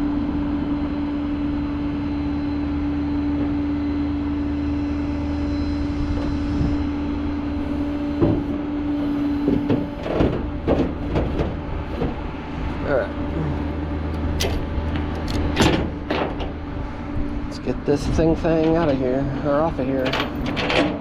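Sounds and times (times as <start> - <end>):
engine rumble: 0.0 - 21.0
hydraulic whine: 0.0 - 21.0
metal clunks: 8.1 - 8.6, 9.2 - 12.8, 14.1 - 16.6, 20.0 - 21.0.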